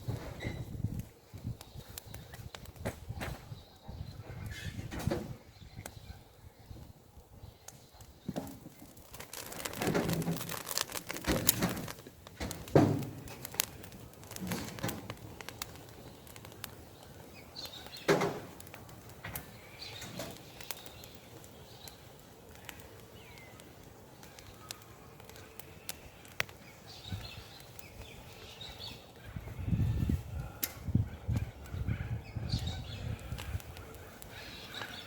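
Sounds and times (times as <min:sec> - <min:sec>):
wood popping: 0:00.0 - 0:03.6, 0:07.6 - 0:31.8, 0:33.0 - 0:35.0
campfire crackling: 0:00.0 - 0:04.6, 0:05.3 - 0:35.0
faint birds chirping: 0:00.2 - 0:10.8, 0:13.4 - 0:35.0.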